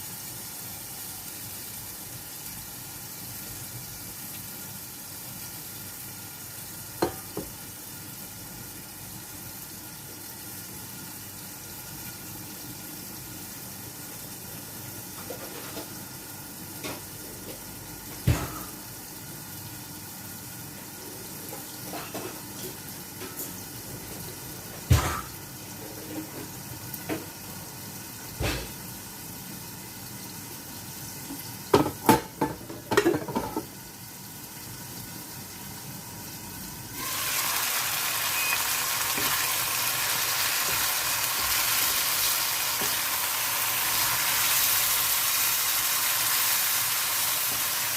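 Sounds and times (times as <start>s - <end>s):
cookware clattering: 31.7s - 33.7s.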